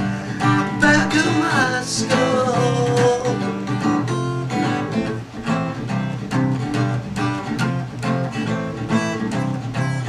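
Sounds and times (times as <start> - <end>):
strummed acoustic guitar: 0.0 - 10.0.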